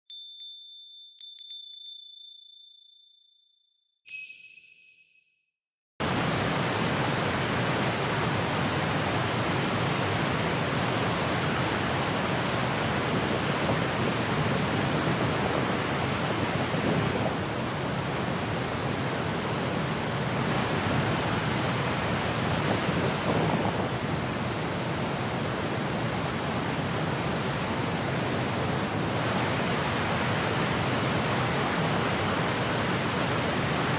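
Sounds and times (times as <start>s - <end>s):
bright chime: 0.1s - 5.4s
chime ringing: 0.1s - 5.4s
waterfall rushing: 6.0s - 33.9s.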